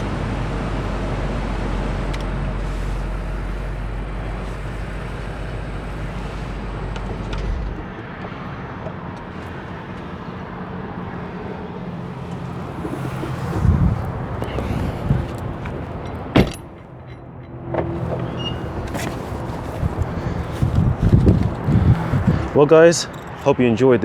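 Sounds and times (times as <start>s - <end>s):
car engine idling: 0.0s - 17.0s, 17.9s - 23.1s
short thump: 7.0s - 8.1s.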